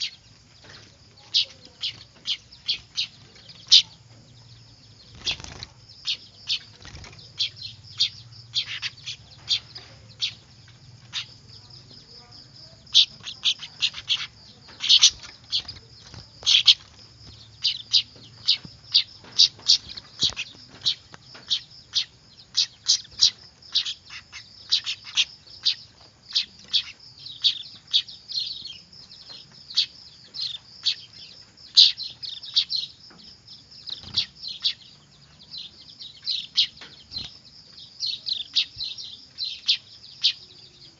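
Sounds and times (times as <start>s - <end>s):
young birds chirping: 0.0s - 40.9s.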